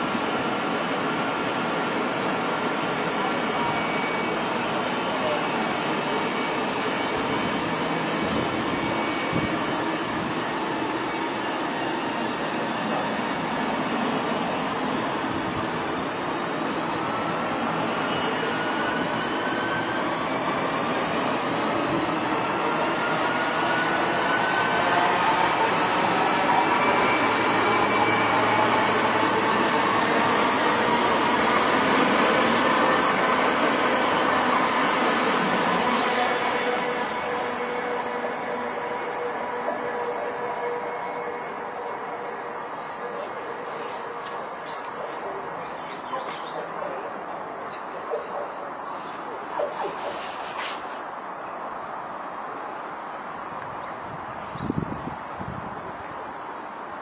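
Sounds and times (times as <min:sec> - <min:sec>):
train wheels rushing on rails: 0:00.0 - 0:45.6.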